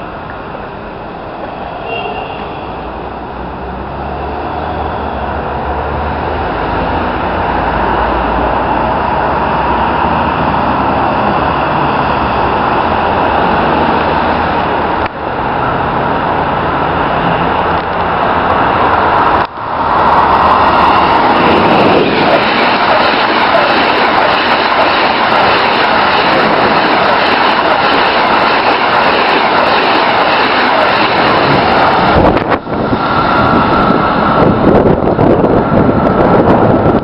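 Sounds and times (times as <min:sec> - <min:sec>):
train passing at speed: 0:00.0 - 0:37.0.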